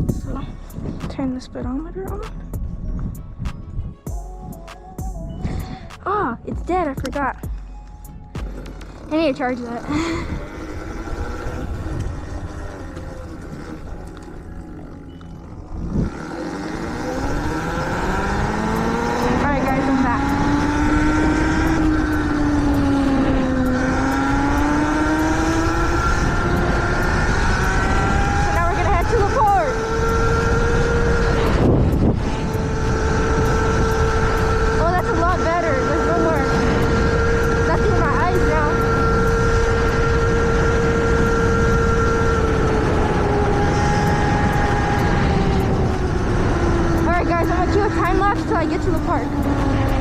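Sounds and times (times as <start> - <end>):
wind rumble on microphone: 0.0 - 50.0
electric motor whining: 7.4 - 50.0.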